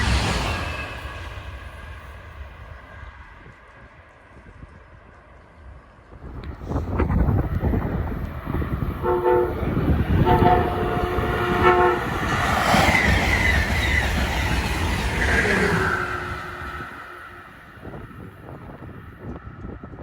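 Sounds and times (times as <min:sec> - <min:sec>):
train rushing past: 0:00.0 - 0:19.9
train wheels rumbling on rails: 0:00.0 - 0:20.0
train air horn: 0:08.8 - 0:12.9, 0:15.6 - 0:18.0.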